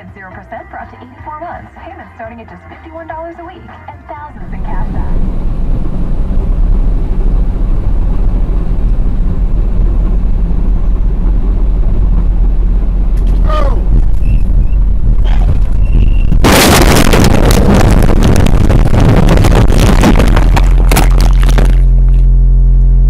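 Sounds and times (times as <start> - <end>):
vehicle engine and road noise: 4.0 - 23.0
short falling squeal: 14.1 - 16.4.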